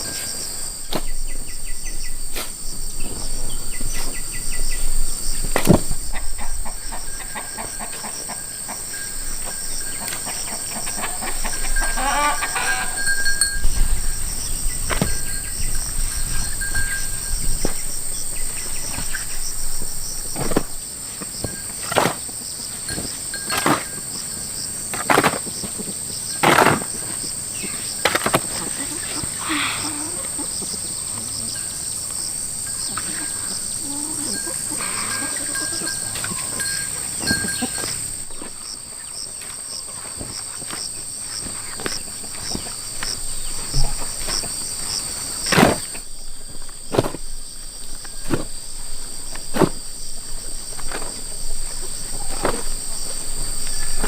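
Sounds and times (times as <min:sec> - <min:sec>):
insects chirring: 0:00.0 - 0:54.0
rooster crowing: 0:10.3 - 0:13.2.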